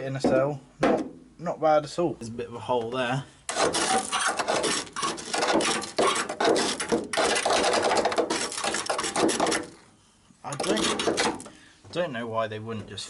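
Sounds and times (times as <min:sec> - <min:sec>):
scraping on rusty sheet metal: 0:03.5 - 0:09.8, 0:10.6 - 0:11.5.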